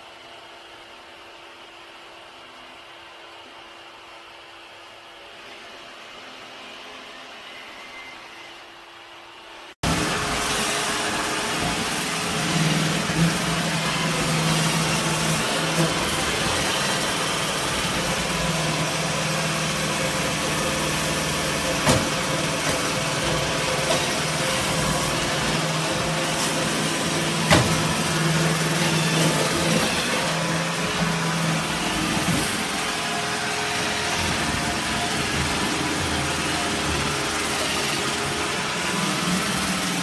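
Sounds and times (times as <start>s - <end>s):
robot vacuum motor whirring: 9.8s - 40.0s.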